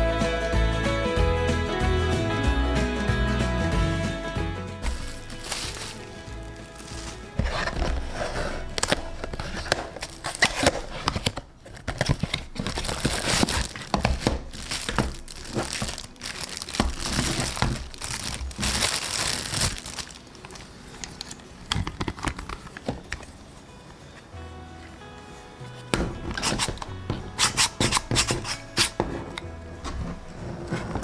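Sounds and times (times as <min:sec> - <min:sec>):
packaging crinkling and tearing: 0:04.8 - 0:23.7, 0:25.6 - 0:31.0.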